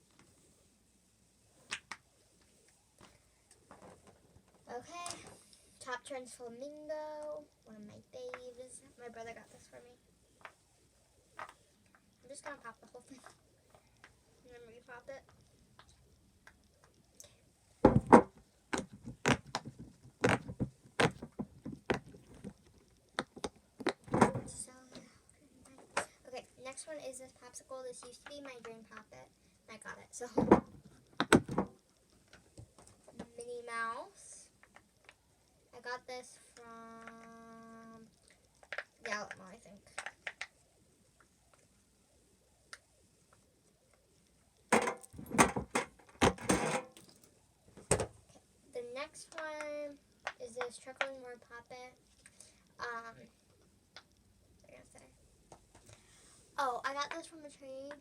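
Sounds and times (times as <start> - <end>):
fidget toy popping: 1.7 - 2.1.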